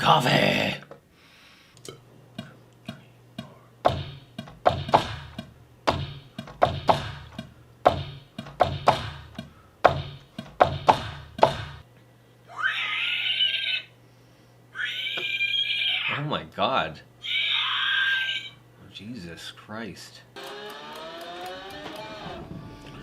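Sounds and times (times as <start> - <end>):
drum beat: 3.4 - 11.8
low drum thud: 3.9 - 11.8.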